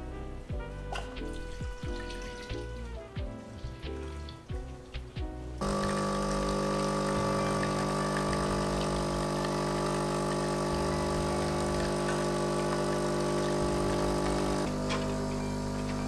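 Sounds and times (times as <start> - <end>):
kitchen appliance motor humming: 5.6 - 16.0.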